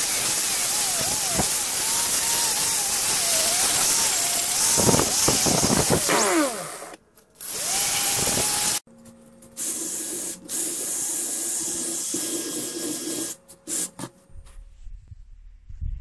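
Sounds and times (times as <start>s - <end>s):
power tool grinding hiss: 0.0s - 8.8s, 9.6s - 14.0s
rotary tool motor humming: 0.0s - 8.8s.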